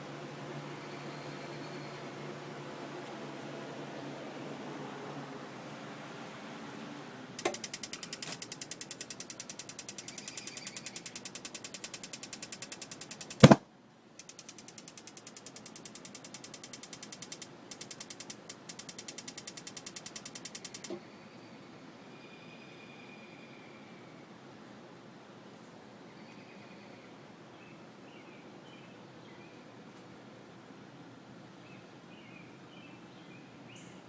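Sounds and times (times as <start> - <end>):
spark igniter clicking rapidly: 7.4 - 13.6, 14.2 - 21.0.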